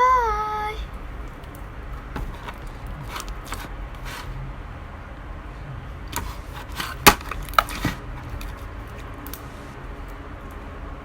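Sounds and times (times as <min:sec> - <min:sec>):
handling rustles: 0:00.9 - 0:04.4, 0:06.1 - 0:09.7.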